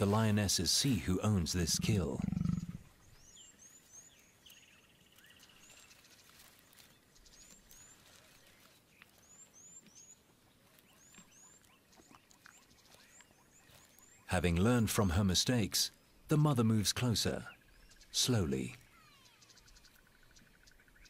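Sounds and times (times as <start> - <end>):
bird trill: 18.8 - 21.0.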